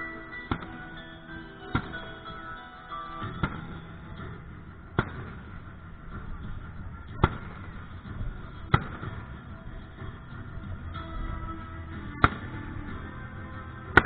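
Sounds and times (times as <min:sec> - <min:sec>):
background rumble: 0:03.2 - 0:14.0.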